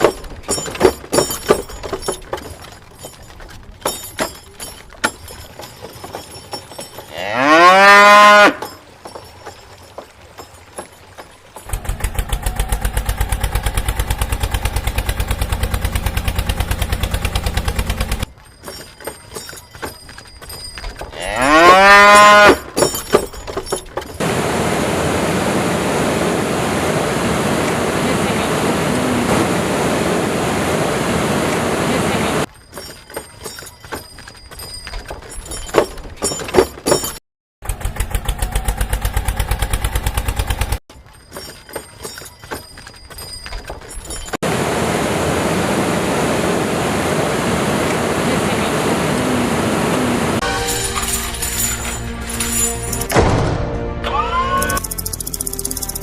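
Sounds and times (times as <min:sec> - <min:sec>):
cow mooing: 0:07.1 - 0:08.7, 0:21.2 - 0:22.6
engine-like pulsing: 0:11.7 - 0:18.3.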